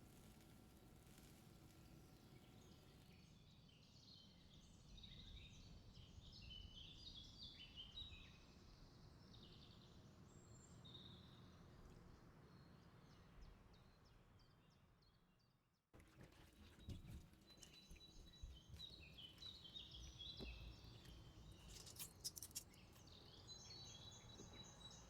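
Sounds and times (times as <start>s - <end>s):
faint bird chirping: 17.4s - 25.0s.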